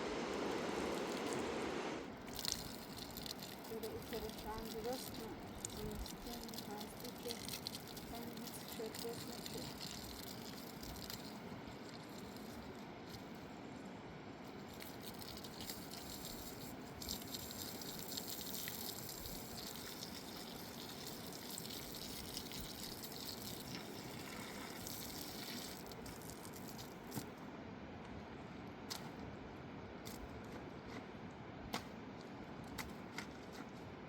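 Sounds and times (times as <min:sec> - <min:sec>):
water splashing and gushing: 0:00.2 - 0:12.7, 0:14.8 - 0:27.2.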